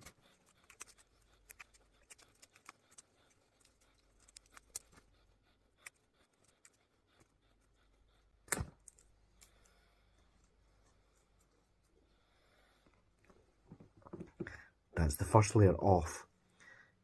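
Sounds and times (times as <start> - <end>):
tape crackling as it is peeled: 0.0 - 7.4.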